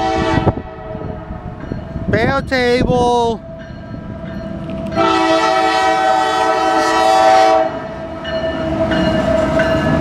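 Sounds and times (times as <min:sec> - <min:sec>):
locomotive air horn: 0:00.0 - 0:01.2, 0:04.9 - 0:09.6
freight train rumbling past: 0:00.0 - 0:10.0.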